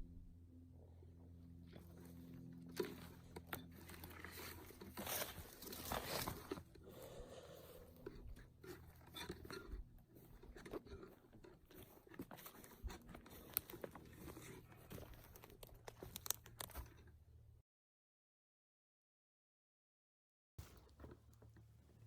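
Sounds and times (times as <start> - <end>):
crunching of leaf litter and twigs: 1.7 - 17.0, 20.6 - 22.0.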